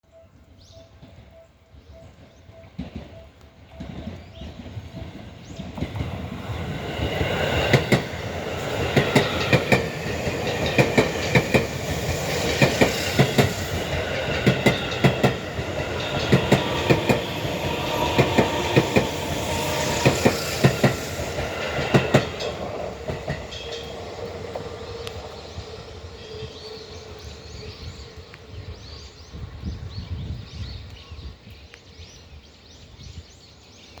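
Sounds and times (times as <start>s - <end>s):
faint train hum: 0.0s - 33.8s
train wheels clattering over rail joints: 3.8s - 25.0s.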